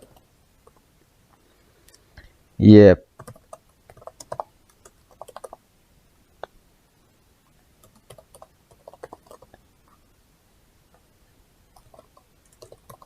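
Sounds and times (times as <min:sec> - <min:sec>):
computer keyboard keys clicking: 0:03.2 - 0:05.6, 0:07.8 - 0:09.6, 0:11.7 - 0:13.0.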